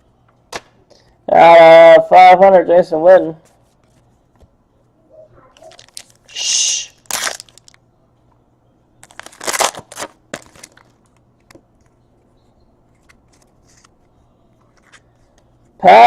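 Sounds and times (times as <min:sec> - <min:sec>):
cards crinkling and rustling: 0:05.6 - 0:06.3, 0:07.0 - 0:07.8, 0:09.0 - 0:12.0, 0:12.9 - 0:15.6.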